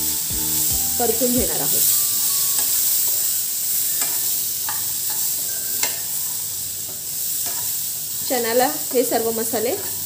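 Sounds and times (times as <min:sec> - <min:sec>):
chickpeas sizzling in oil: 0:00.0 - 0:10.0
spatula scraping and tapping pan: 0:03.9 - 0:07.8.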